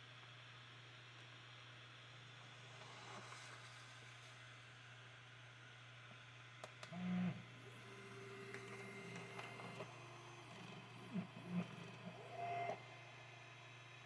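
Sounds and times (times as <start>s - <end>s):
stepper motors whining: 6.9s - 14.0s.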